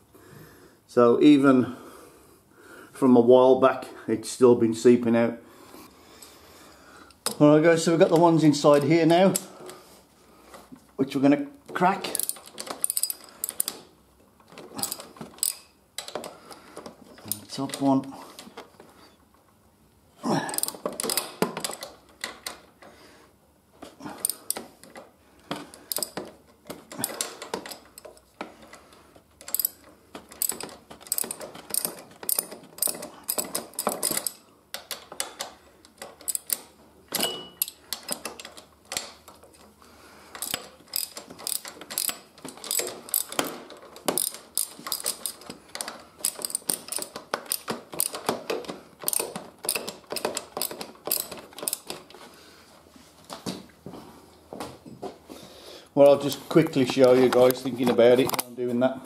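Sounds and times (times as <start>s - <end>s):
ratchet spanner clicking: 12.1s - 13.8s, 14.8s - 16.2s, 24.2s - 24.6s, 25.9s - 26.2s, 29.4s - 29.8s, 30.4s - 36.7s, 37.6s - 39.1s, 40.4s - 48.4s, 49.0s - 52.0s.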